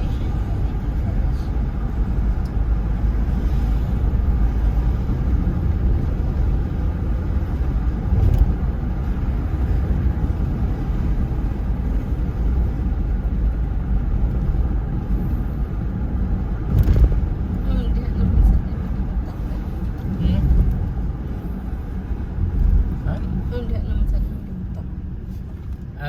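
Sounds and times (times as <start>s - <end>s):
car driving cabin rumble: 0.0s - 26.0s
car bump: 16.7s - 17.3s.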